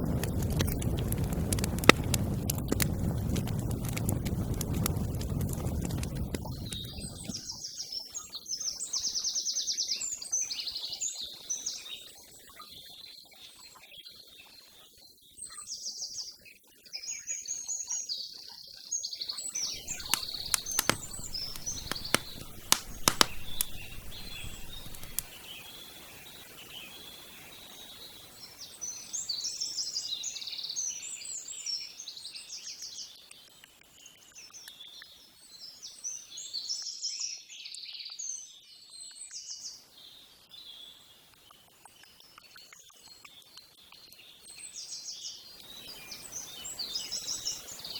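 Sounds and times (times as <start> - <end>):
sharp clicks: 0.2 - 2.9, 19.8 - 25.3
songbirds chirping and singing: 19.5 - 25.5.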